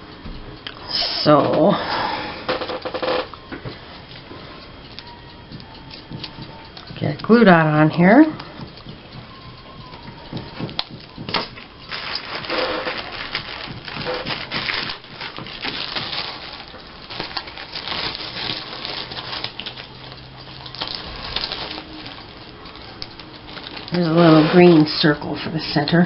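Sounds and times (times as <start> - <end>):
paper crinkling and rustling: 11.3 - 25.1.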